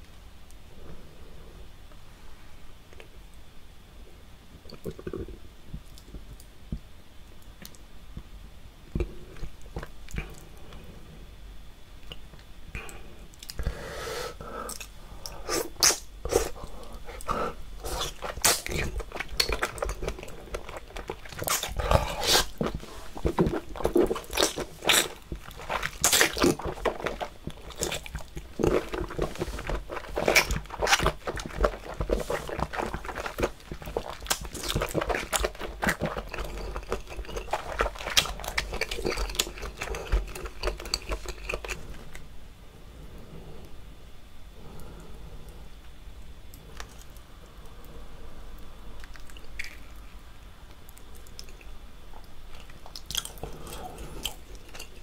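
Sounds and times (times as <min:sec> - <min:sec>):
wet chewing with mouth smacks: 0:14.7 - 0:42.2, 0:49.0 - 0:49.9, 0:50.9 - 0:55.0.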